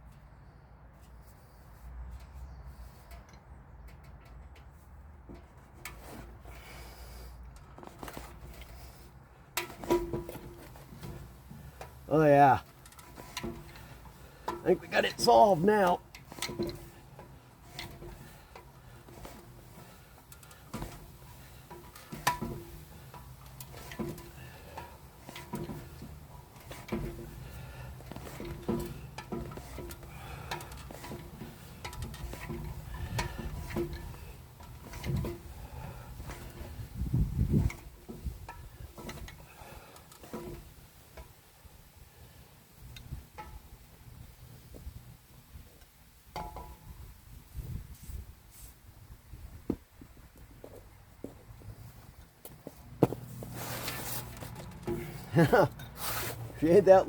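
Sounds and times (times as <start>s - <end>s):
faint clicks and light knocks: 3.0s - 6.0s.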